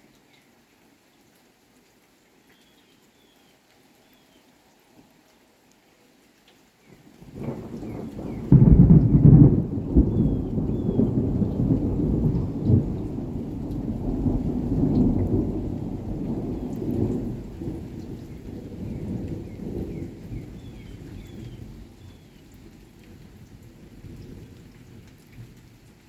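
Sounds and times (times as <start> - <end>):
rain falling: 0.0 - 26.0
low rolling thunder rumble: 7.2 - 25.6
thunder clap: 7.3 - 21.7.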